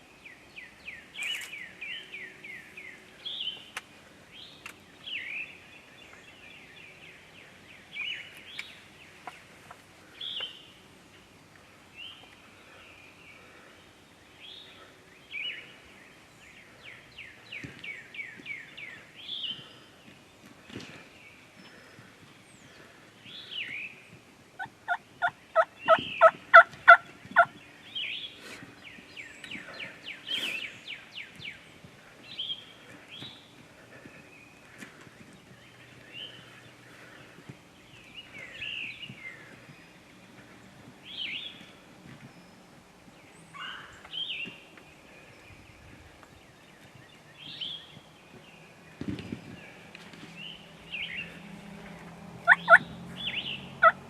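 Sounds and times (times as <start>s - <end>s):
turkey gobble: 24.6s - 27.5s, 52.4s - 52.8s
wild turkey yelps: 24.6s - 27.5s, 52.5s - 54.0s
short turkey calls: 52.5s - 52.8s.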